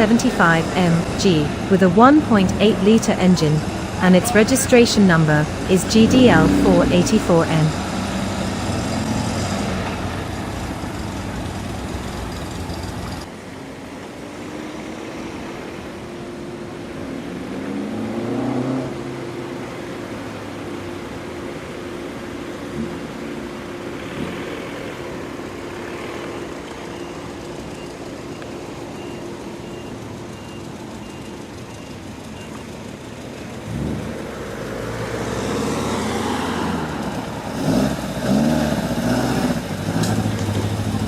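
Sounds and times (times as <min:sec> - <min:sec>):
car engine running: 0:00.0 - 0:13.3.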